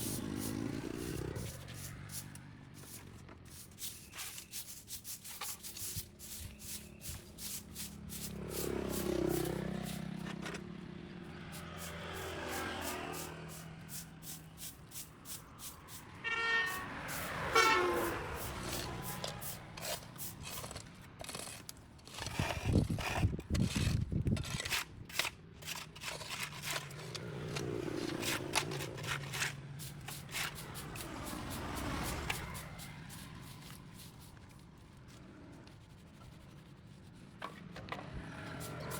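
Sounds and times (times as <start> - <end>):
vehicles passing on road: 0.0 - 38.9
short horn-like tone: 16.2 - 18.2.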